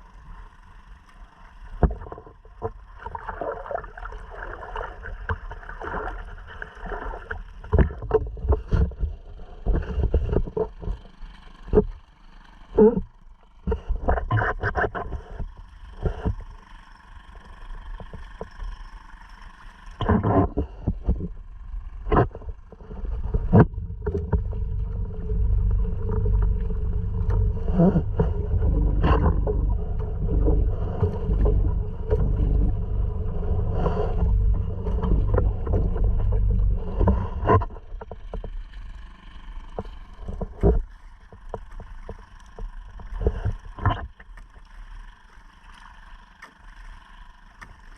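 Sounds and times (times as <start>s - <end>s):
outboard motor running: 0.0s - 47.9s
water splashing: 1.4s - 8.9s, 22.1s - 47.9s
knocks against hull: 7.6s - 11.1s, 22.1s - 25.0s, 27.2s - 32.8s, 33.8s - 38.6s
heavy low wind rumble: 22.7s - 38.4s.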